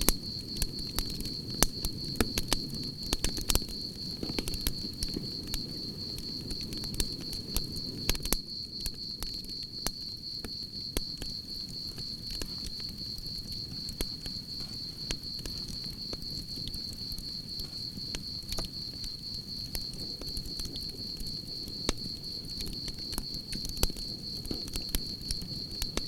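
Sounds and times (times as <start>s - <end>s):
campfire crackling and popping: 0.0s - 26.0s
crickets trilling: 0.0s - 26.0s.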